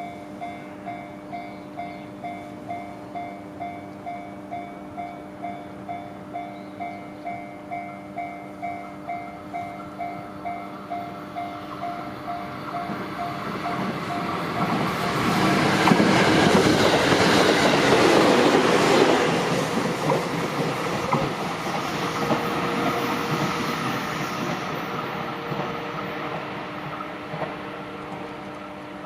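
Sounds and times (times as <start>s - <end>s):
level-crossing warning bell: 0.0s - 16.0s
train rumble and wheel clatter: 0.0s - 29.0s.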